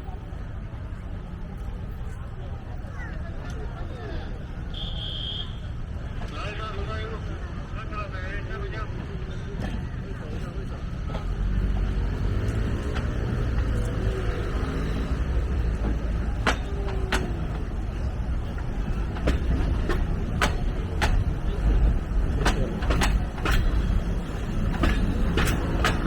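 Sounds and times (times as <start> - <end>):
steam locomotive rumbling: 4.7 - 26.0
sharp knocks: 19.2 - 21.5.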